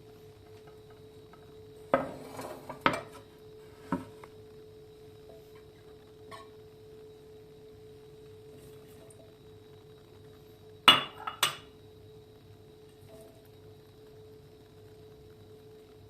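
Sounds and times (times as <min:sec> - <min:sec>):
faint hum: 0:00.0 - 0:16.0
kitchenware clinking: 0:10.9 - 0:11.7.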